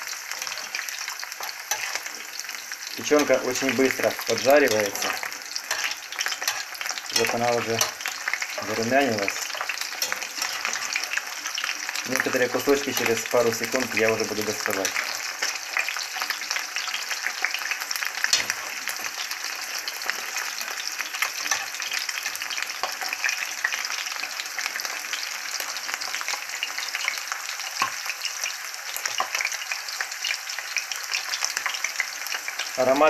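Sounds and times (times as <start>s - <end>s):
liver sizzling in frying pan: 0.0s - 33.0s.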